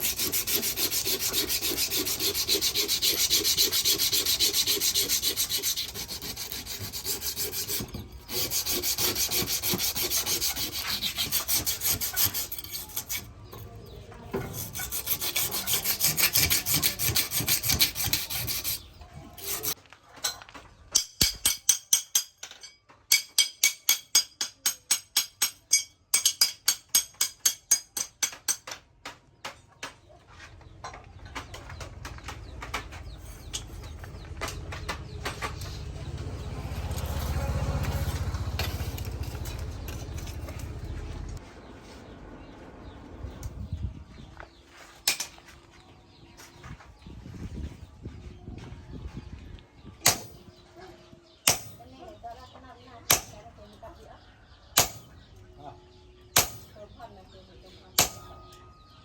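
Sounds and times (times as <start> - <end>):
hand tool scraping steel: 0.0 - 28.8, 32.7 - 41.4, 50.0 - 50.6, 51.4 - 52.0, 53.1 - 53.4, 54.8 - 55.3, 56.4 - 56.8, 58.0 - 58.9
ringing metal strokes: 21.0 - 28.6, 51.4 - 51.9, 56.4 - 56.8, 58.0 - 59.0.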